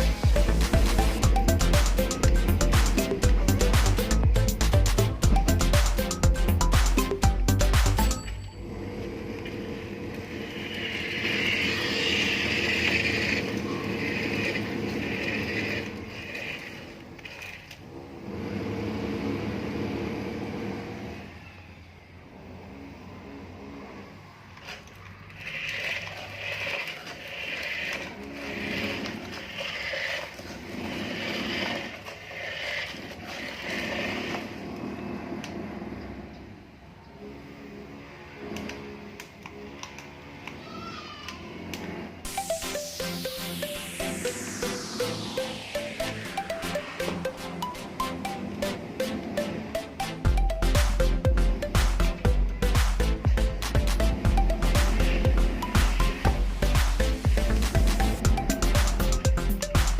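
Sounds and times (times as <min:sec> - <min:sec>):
toy electric motor whining: 0:09.0 - 0:17.9, 0:23.7 - 0:36.2, 0:37.7 - 0:51.0, 0:54.3 - 0:59.8
small electric motors whirring: 0:09.4 - 0:17.9, 0:24.5 - 0:35.6.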